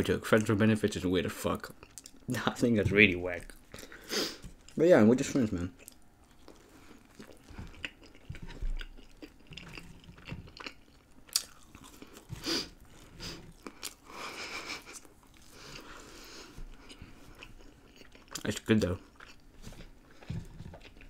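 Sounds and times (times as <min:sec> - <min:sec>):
person chewing food: 0:01.7 - 0:02.3, 0:05.7 - 0:21.0.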